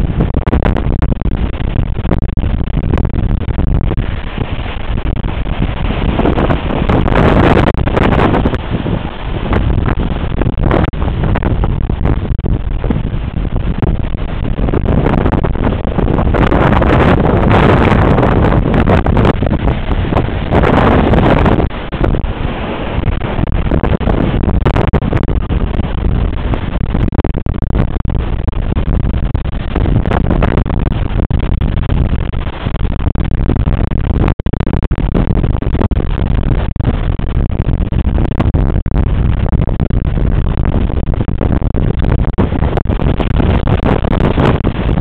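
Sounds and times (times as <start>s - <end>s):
rushing waves: 0.0s - 45.0s
wind buffeting microphone: 0.0s - 45.0s.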